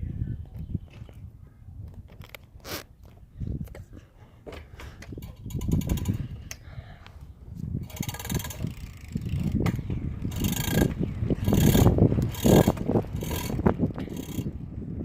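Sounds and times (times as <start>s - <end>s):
low road rumble: 0.0s - 15.0s
wind buffeting microphone: 0.0s - 15.0s
bicycle rattling ticks: 5.0s - 6.7s, 7.8s - 14.9s.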